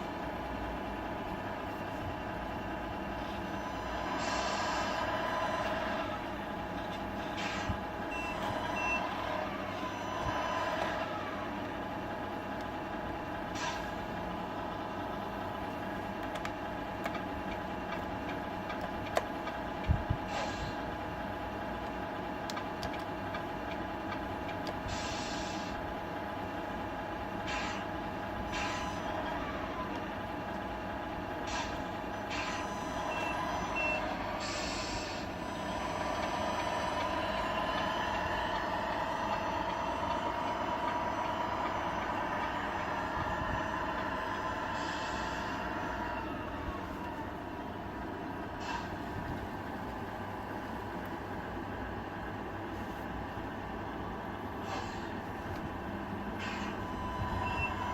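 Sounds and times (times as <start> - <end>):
toy truck diesel engine sound: 2.3 - 47.4
reversing beeps: 8.1 - 9.1, 33.1 - 34.1
air-brake hisses: 24.8 - 25.8.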